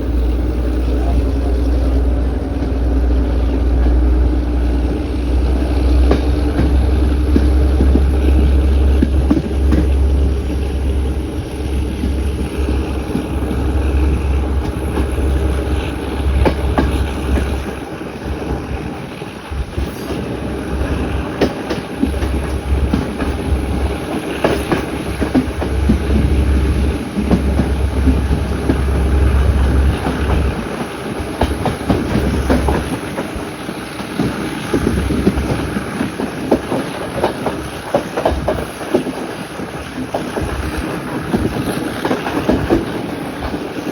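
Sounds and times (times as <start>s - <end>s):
train low rumble: 0.0s - 43.9s
wheel clicks over rail joints: 21.0s - 43.9s.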